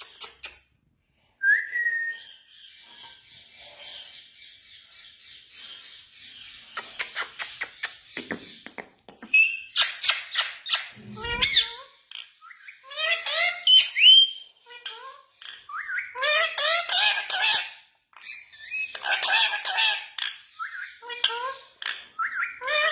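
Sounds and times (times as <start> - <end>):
parrot calling and chattering: 0.0 - 0.8, 6.4 - 22.9.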